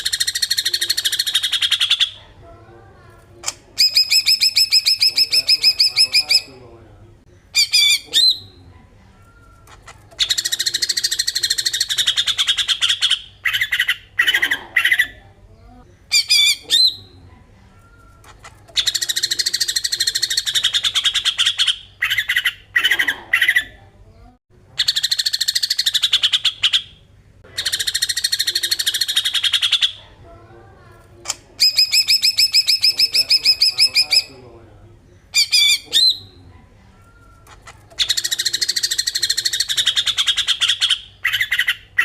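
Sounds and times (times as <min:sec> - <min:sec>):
bird rattling song: 0:03.4 - 0:06.5, 0:31.6 - 0:34.3, 0:37.4 - 0:42.0
bird whistled phrases: 0:03.8 - 0:06.5, 0:31.6 - 0:34.3.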